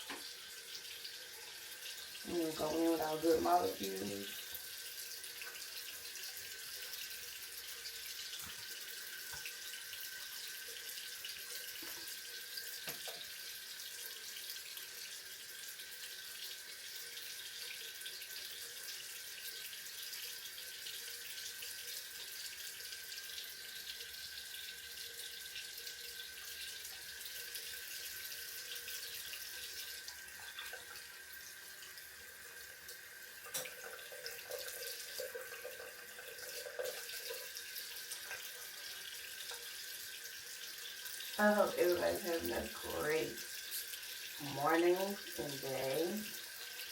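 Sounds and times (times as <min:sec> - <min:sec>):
tap running into sink: 0:00.0 - 0:00.4, 0:08.3 - 0:09.6, 0:11.7 - 0:13.4, 0:33.4 - 0:37.5.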